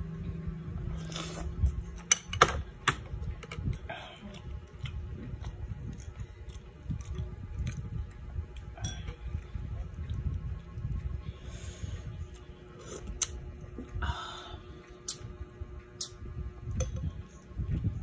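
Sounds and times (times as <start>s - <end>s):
close chewing and eating: 3.2s - 14.0s.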